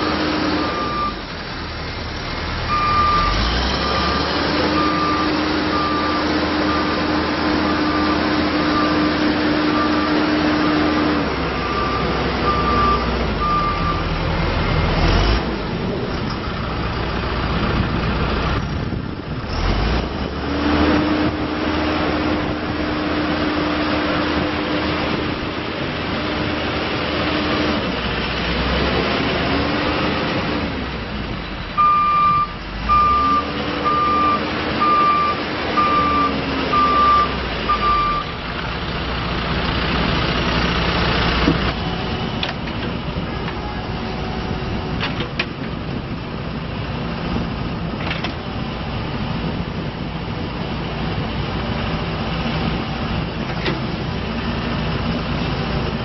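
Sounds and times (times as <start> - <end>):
diesel engine running: 0.0 - 56.0
reverse alarm beeping: 0.6 - 1.2, 2.7 - 4.1, 11.6 - 14.1, 31.8 - 38.3.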